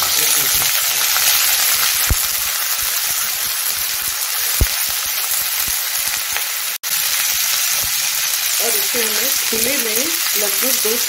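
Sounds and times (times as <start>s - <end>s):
oil popping: 0.0s - 6.7s
vegetables sizzling in hot oil: 0.0s - 11.0s.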